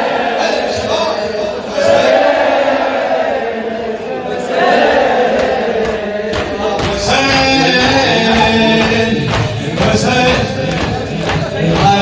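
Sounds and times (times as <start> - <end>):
rhythmic beats: 4.5 - 12.0
man singing a lament: 5.9 - 12.0.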